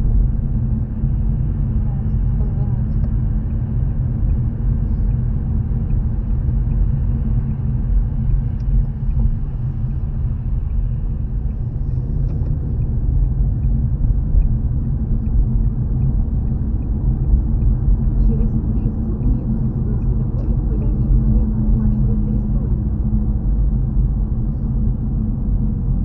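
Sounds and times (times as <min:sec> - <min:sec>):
car engine and tyres on road: 0:00.0 - 0:26.0
faint regular ticking: 0:03.0 - 0:21.0.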